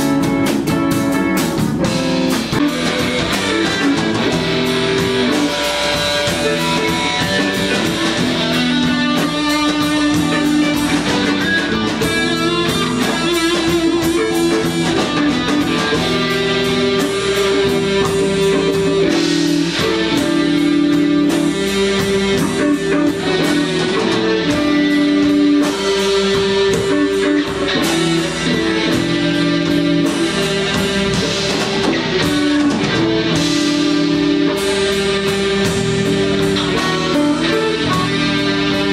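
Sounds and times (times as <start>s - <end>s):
live guitar instrumental music: 0.0s - 38.9s.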